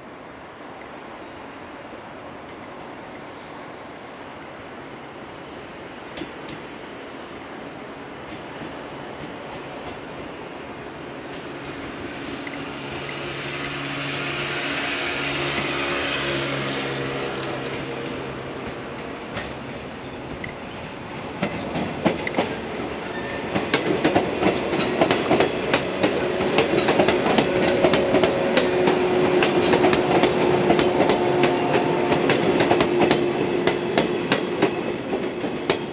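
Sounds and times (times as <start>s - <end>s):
train wheels clacking over joints: 14.6s - 35.9s.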